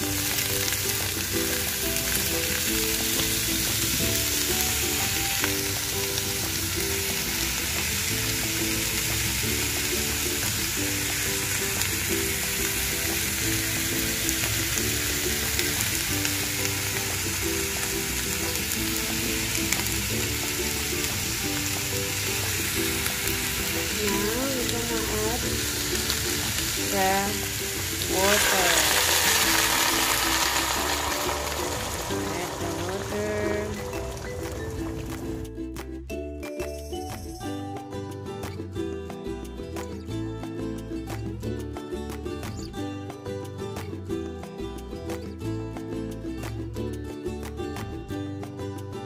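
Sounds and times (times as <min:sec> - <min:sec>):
quiet repeating tune: 0:00.0 - 0:29.1
bones sizzling in a hot pot: 0:00.0 - 0:35.5.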